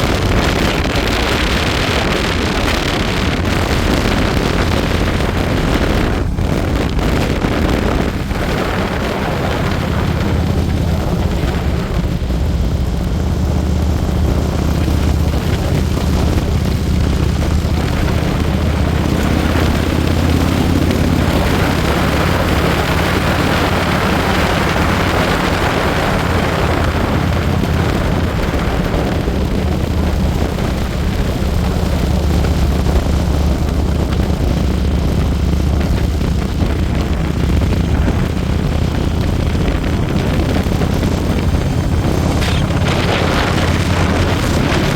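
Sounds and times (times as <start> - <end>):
motorcycle engine running: 0.0 - 44.9
wind rushing: 0.0 - 44.9
hissing rush of noise: 41.7 - 44.9.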